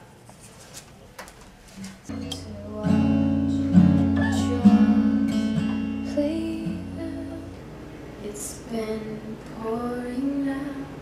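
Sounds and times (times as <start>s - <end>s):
acoustic guitar strumming chords: 2.1s - 7.8s.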